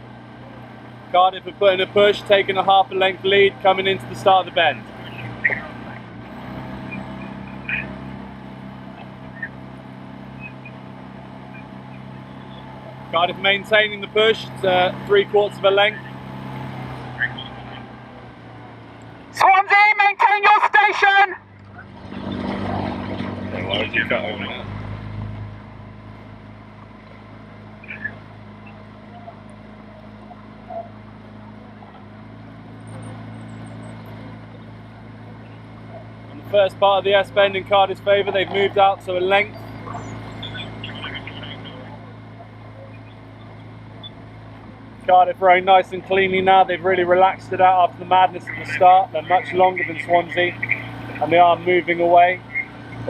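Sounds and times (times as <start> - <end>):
boat engine drone: 0.0 - 53.0.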